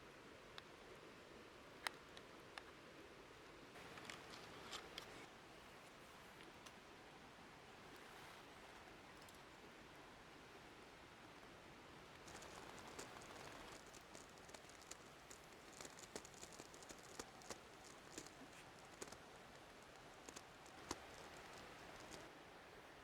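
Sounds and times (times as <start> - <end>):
soft hiss: 0.0 - 23.0
faint crackles and clicks: 3.8 - 6.8, 12.2 - 22.3.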